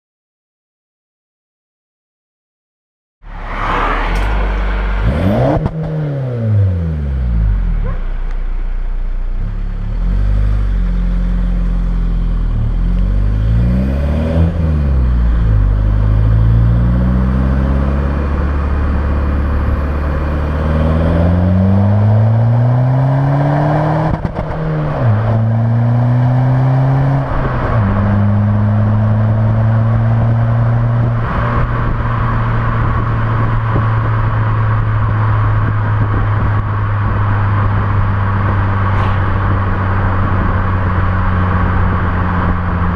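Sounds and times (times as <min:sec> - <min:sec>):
diesel engine revving: 0:03.3 - 0:08.0, 0:09.2 - 0:42.9.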